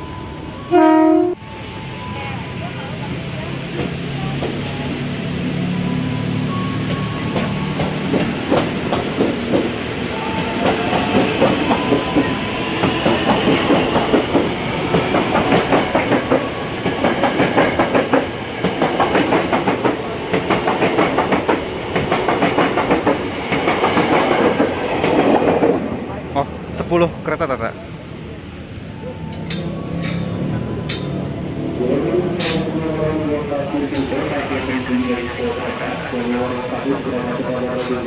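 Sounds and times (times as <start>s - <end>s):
train wheels clattering over rail joints: 7.4s - 9.8s, 10.6s - 25.8s, 32.4s - 33.0s.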